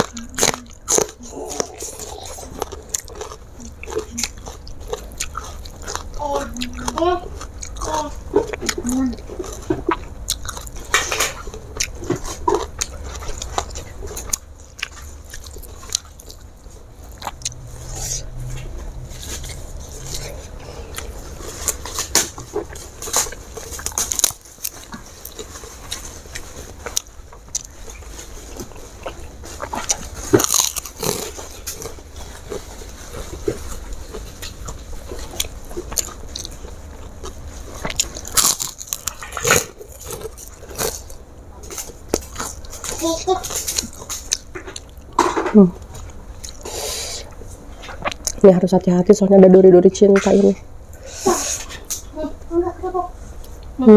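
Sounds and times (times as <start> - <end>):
wet chewing and lip smacks: 0.0 - 18.7
fried crackers crunching: 0.0 - 48.4.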